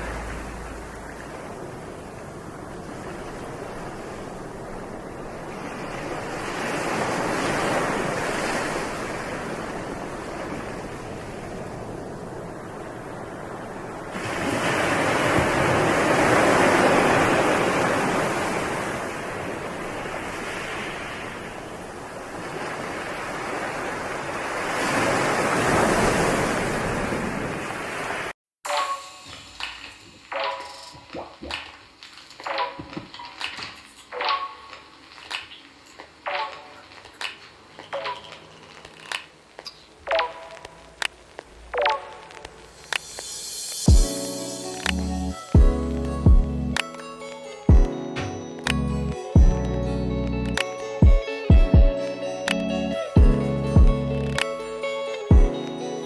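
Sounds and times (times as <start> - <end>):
waves rushing in and washing back: 0.0 - 32.8, 40.0 - 56.0.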